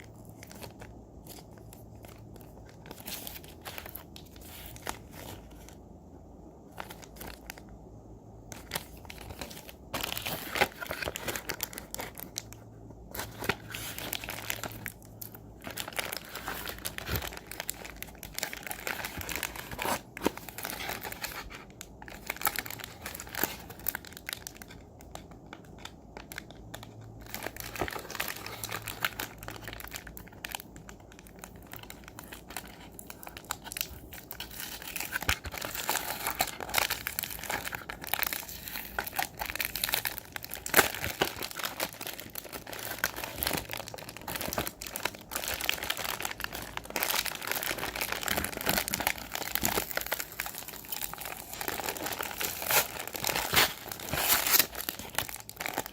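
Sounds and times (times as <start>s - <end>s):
packaging crinkling and tearing: 0.0s - 5.8s, 8.5s - 55.9s.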